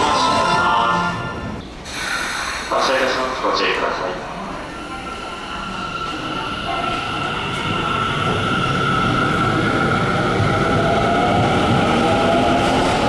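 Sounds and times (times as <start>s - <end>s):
train wheels rumbling on rails: 4.3s - 13.0s.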